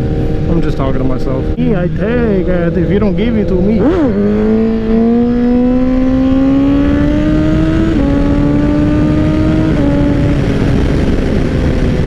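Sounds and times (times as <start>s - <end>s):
wind noise: 0.0s - 12.0s
motorcycle engine pulling: 2.5s - 11.9s.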